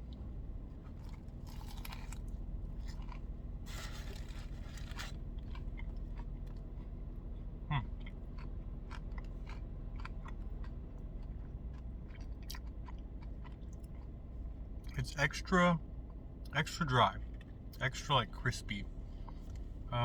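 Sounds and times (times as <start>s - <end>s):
close-up crunchy chewing: 0.8s - 15.0s
crunchy bite into sandwich: 1.0s - 6.6s.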